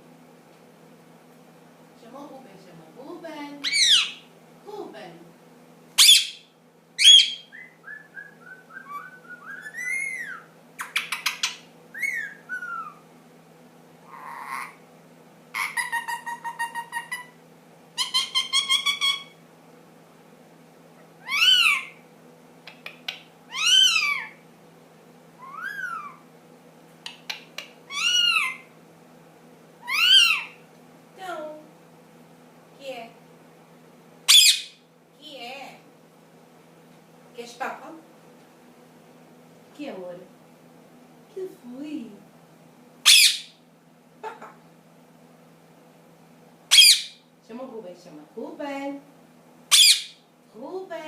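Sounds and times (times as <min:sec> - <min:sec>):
parakeet whistling: 0:03.6 - 0:04.2, 0:06.0 - 0:13.0, 0:18.0 - 0:19.4, 0:21.2 - 0:22.0, 0:23.5 - 0:24.4, 0:25.4 - 0:26.2, 0:27.9 - 0:28.6, 0:29.8 - 0:30.6, 0:34.3 - 0:34.8, 0:43.0 - 0:43.6, 0:46.7 - 0:47.2, 0:49.7 - 0:50.2.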